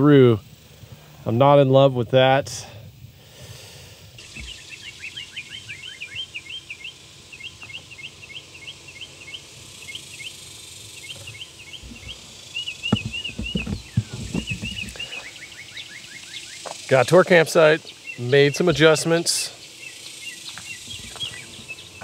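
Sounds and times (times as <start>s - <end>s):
birds chirping: 4.2s - 22.0s
low thumps: 11.8s - 15.1s.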